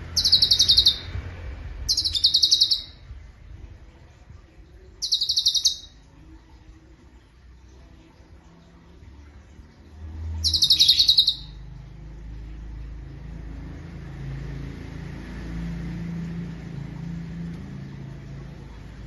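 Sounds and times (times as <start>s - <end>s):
songbird trilling: 0.0s - 1.2s, 1.9s - 3.0s, 5.0s - 6.0s, 10.4s - 11.6s
low steady rumble: 0.0s - 19.0s.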